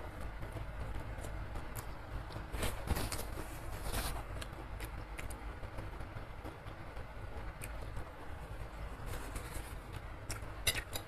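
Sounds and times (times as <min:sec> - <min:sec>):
chewing crispy food: 0:07.4 - 0:11.0.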